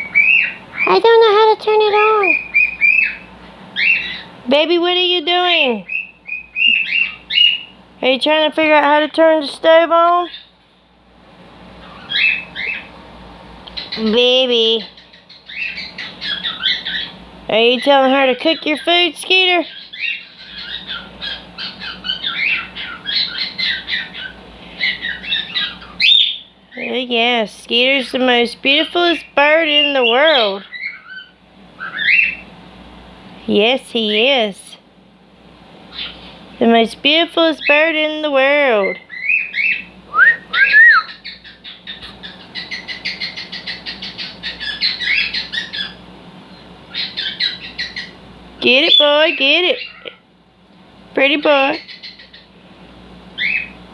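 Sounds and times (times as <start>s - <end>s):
cockatiel chirps and squawks: 0.1s - 0.9s, 2.3s - 4.3s, 5.9s - 7.7s, 11.8s - 12.9s, 15.0s - 17.1s, 19.7s - 26.5s, 30.3s - 32.4s, 35.9s - 36.2s, 38.9s - 46.0s, 46.9s - 48.2s, 51.8s - 52.5s, 53.4s - 53.8s.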